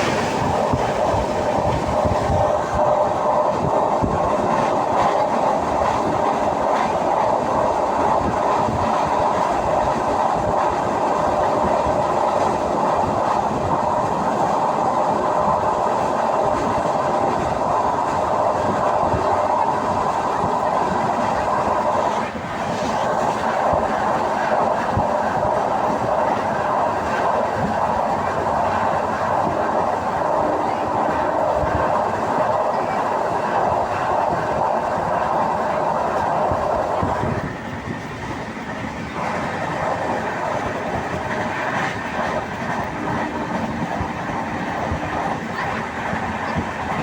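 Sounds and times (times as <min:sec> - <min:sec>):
train rumble and rattle: 0:00.0 - 0:47.0
wheels clattering on rails: 0:00.0 - 0:47.0.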